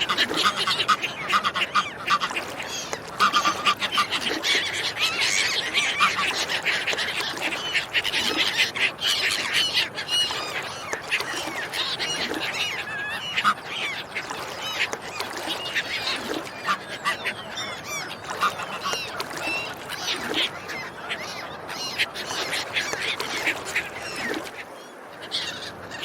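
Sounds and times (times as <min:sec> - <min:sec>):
ducks and swans honking: 0:00.0 - 0:04.4, 0:05.8 - 0:06.5, 0:13.1 - 0:17.4, 0:18.3 - 0:19.4.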